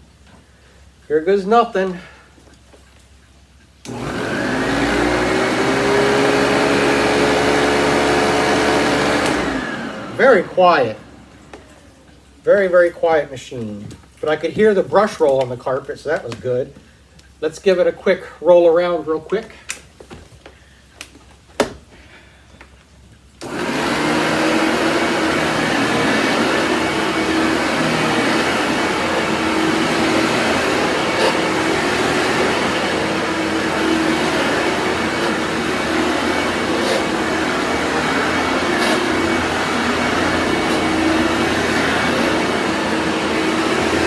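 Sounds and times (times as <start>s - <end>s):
upright vacuum cleaner running: 3.8s - 12.3s, 23.4s - 44.0s.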